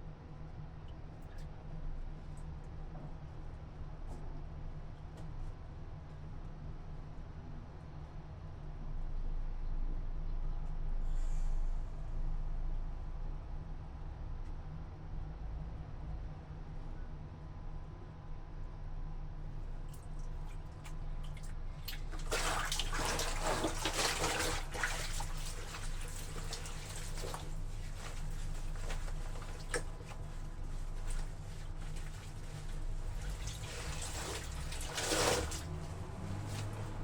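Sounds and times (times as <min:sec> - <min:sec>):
steady low hum: 0:18.6 - 0:37.0
water sloshing and splashing: 0:19.8 - 0:37.0
water dripping: 0:19.9 - 0:36.9.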